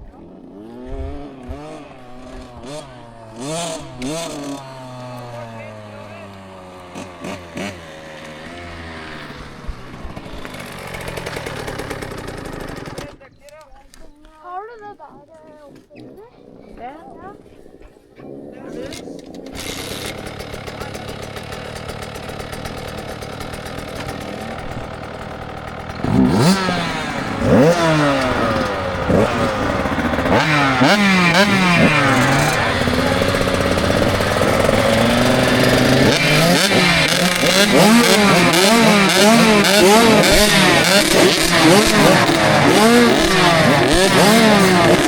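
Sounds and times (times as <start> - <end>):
motocross bike engine revving: 0.0 - 13.3, 18.3 - 45.0.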